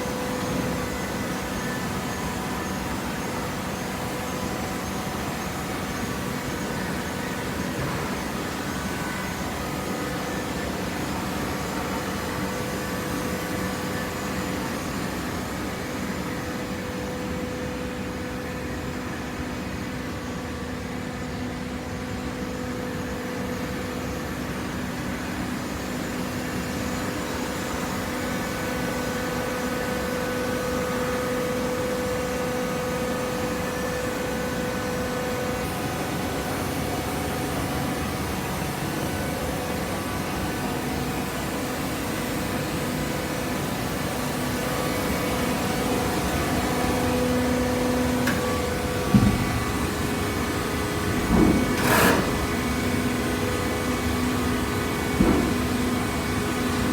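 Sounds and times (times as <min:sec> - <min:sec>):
baler machine humming: 0:43.5 - 0:56.9.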